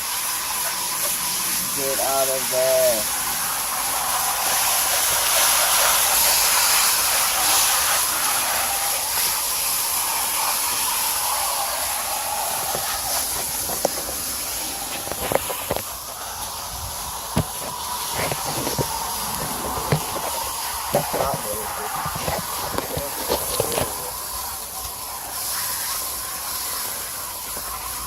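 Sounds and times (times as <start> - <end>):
hose spraying water on coil: 0.0 - 28.0.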